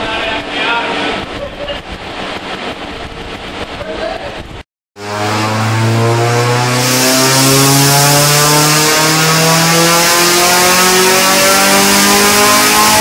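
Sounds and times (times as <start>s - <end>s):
car engine revving on dynamometer: 5.0s - 13.0s.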